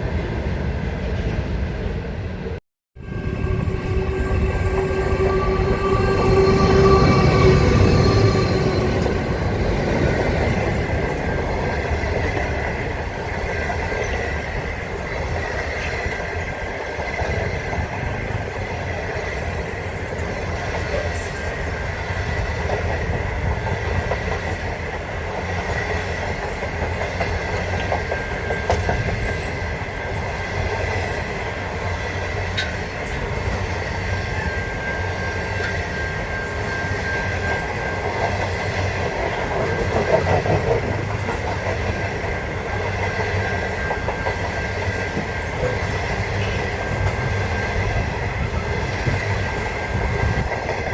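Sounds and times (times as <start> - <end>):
train rumbling on track: 0.0 - 50.9
thin high tone: 3.0 - 11.4.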